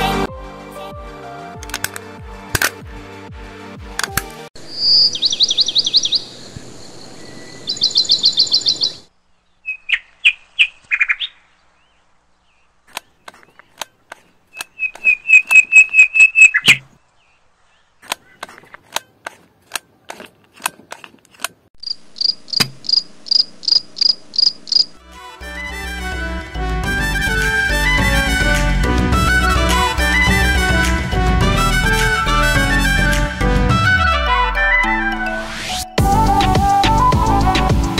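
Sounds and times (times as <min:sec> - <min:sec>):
music: 0:00.0 - 0:04.5, 0:25.0 - 0:37.9
birds chirping and trilling: 0:04.6 - 0:19.3, 0:21.8 - 0:25.0
sharp clicks: 0:22.5 - 0:23.8.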